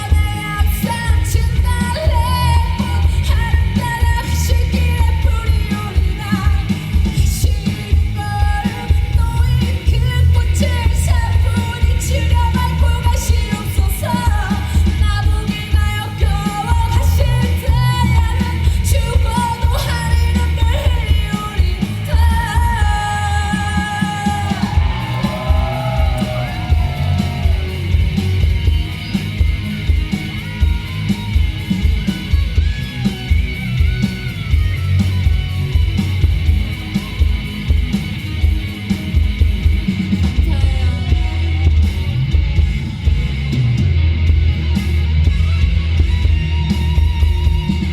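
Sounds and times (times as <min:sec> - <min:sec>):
woman singing: 0:00.0 - 0:27.7, 0:40.3 - 0:41.9
heavy kick-drum beat: 0:00.0 - 0:47.9
live band music: 0:00.0 - 0:47.9.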